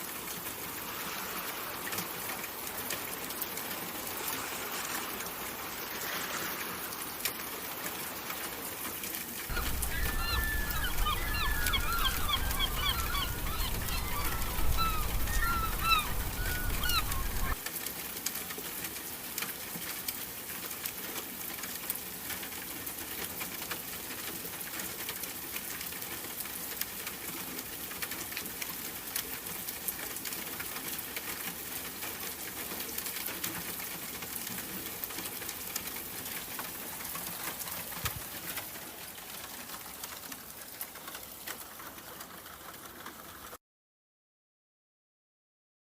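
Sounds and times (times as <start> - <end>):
rain-like hiss with crackles: 0.0 - 43.6
birds chirping: 9.5 - 17.6.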